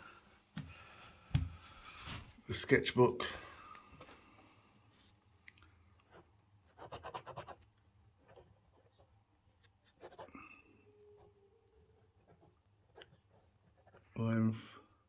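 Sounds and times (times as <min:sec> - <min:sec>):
pen scratching on paper: 0:06.1 - 0:10.3, 0:12.0 - 0:14.2.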